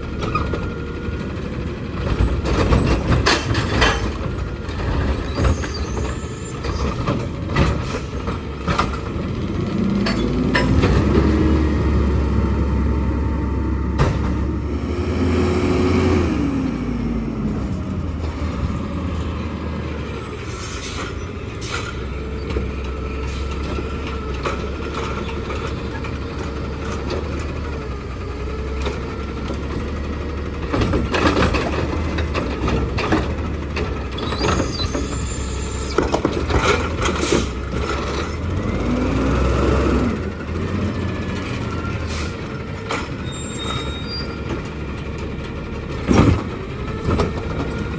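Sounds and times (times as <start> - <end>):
diesel engine running: 0.0 - 47.9
clanks and bangs: 2.0 - 9.3, 13.9 - 14.7.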